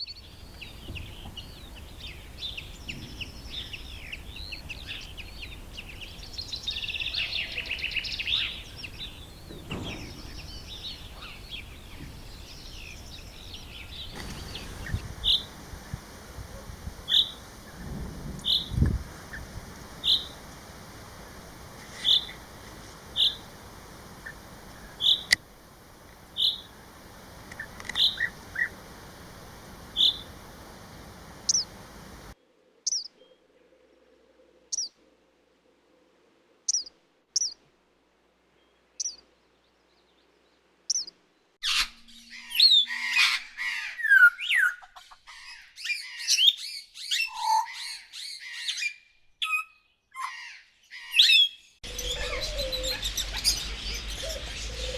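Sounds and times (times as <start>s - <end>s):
steady hiss: 0.0s - 32.4s, 51.8s - 54.9s
fast whistling birdsong: 0.0s - 33.1s, 51.1s - 54.9s
high bird chirps: 0.0s - 33.1s, 51.2s - 54.9s.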